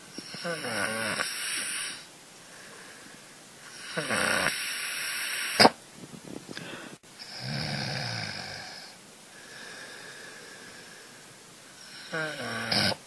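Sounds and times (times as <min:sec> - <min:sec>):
cat snoring: 0:00.2 - 0:02.0, 0:03.7 - 0:05.7, 0:07.2 - 0:09.0, 0:11.8 - 0:13.0.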